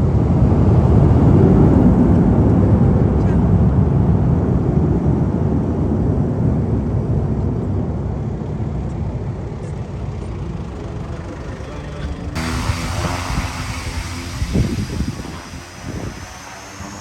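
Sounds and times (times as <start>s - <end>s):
airliner engines rumbling: 0.0s - 17.0s
propeller engine drone: 0.0s - 17.0s.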